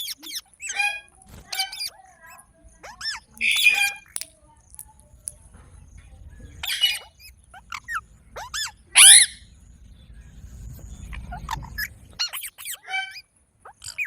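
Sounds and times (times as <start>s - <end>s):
parrot chirping and squawking: 0.0s - 4.8s, 6.6s - 9.5s, 11.1s - 14.0s.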